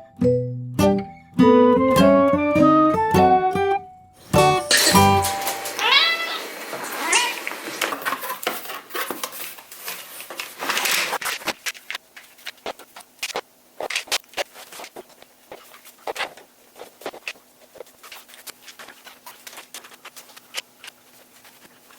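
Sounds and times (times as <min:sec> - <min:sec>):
guitar music: 0:00.0 - 0:05.8
cat meowing: 0:05.8 - 0:07.5.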